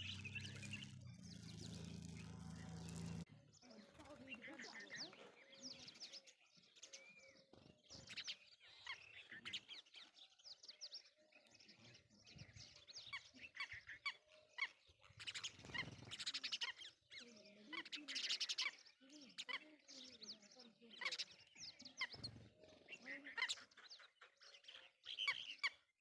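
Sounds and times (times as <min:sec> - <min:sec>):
birds calling with shrill chirps: 0:00.0 - 0:26.0.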